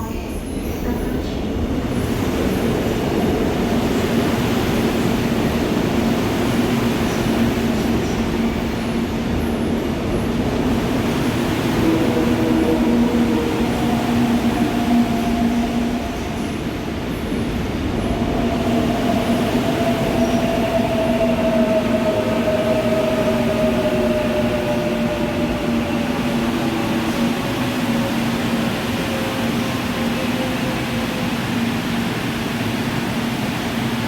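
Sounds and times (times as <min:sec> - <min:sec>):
train rumble: 0:00.0 - 0:34.0
subway train motor whine: 0:00.3 - 0:34.0.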